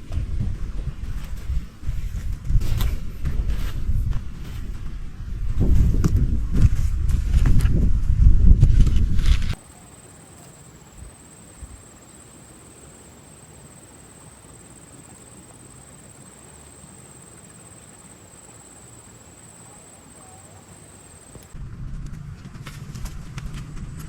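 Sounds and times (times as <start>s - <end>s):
high-pitched insect trill: 9.6s - 21.6s.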